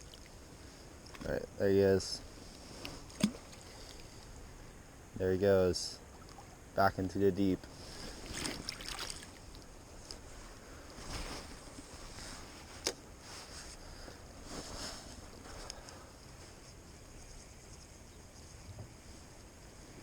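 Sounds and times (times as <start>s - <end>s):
river water rushing and splashing: 8.0s - 9.6s.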